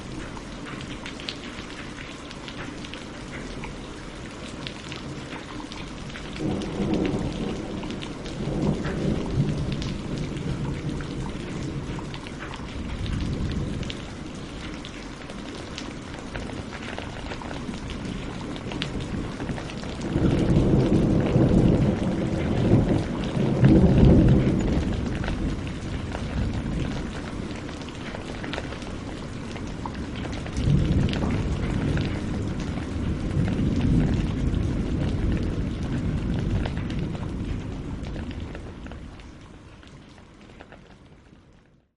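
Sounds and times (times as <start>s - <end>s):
rain falling: 0.0s - 41.9s
thunder rolling: 6.3s - 14.8s, 15.6s - 39.1s.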